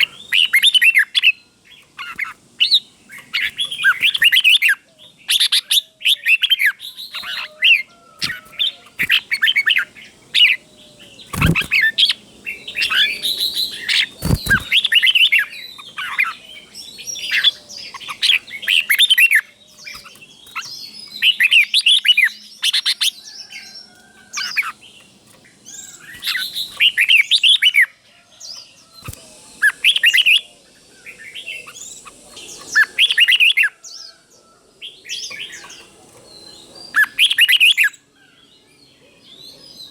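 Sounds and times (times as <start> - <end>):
bird singing whistled notes: 0.0 - 24.8, 28.8 - 34.2, 36.4 - 38.0.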